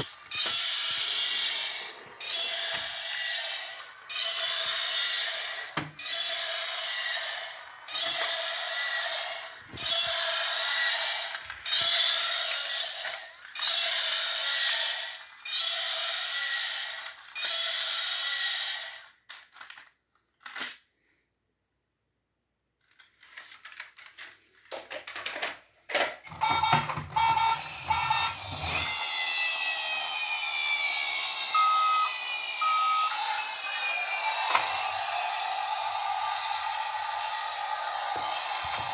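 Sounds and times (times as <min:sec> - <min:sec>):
toy electronic bursts: 0:00.0 - 0:19.0, 0:26.4 - 0:38.9
toy siren wailing: 0:00.0 - 0:19.0, 0:26.4 - 0:38.9
toy clicks: 0:00.0 - 0:20.8, 0:25.0 - 0:36.6
toy motor whir: 0:00.0 - 0:20.8, 0:26.4 - 0:38.9
beeping tone: 0:26.4 - 0:38.9.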